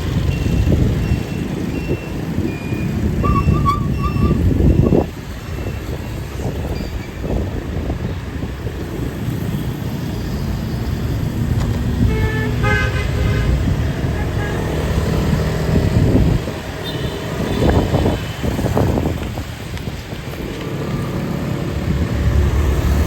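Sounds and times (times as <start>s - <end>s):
motorbike engines passing: 0.0s - 23.0s
vehicle horn honking: 3.2s - 4.4s, 12.0s - 13.6s.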